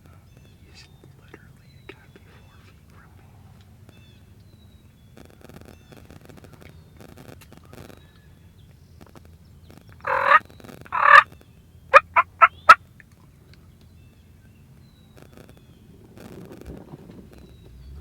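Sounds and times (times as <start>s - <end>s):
short sharp turkey notes: 10.0s - 11.2s, 12.0s - 12.8s
turkey gobbling: 10.0s - 11.2s, 11.9s - 12.8s.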